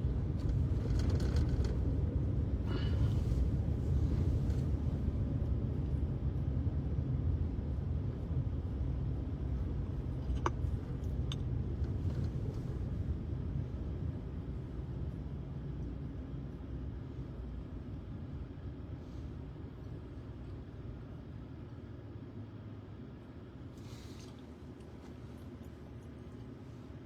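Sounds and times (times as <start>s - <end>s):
car cabin road and engine rumble: 0.0s - 27.0s.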